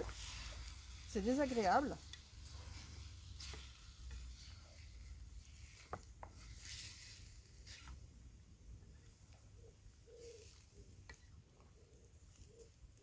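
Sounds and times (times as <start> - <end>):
sauce sizzling in pot: 0.0 - 5.8
wood fire crackles: 0.0 - 8.3, 10.4 - 13.0.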